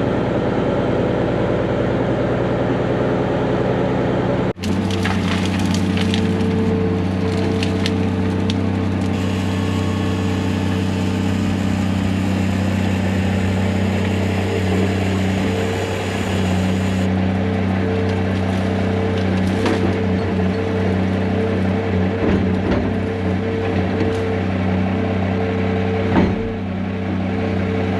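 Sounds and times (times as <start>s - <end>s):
heavy diesel engine running: 0.0s - 27.9s
wood cracking and snapping: 4.6s - 9.2s, 17.9s - 21.2s.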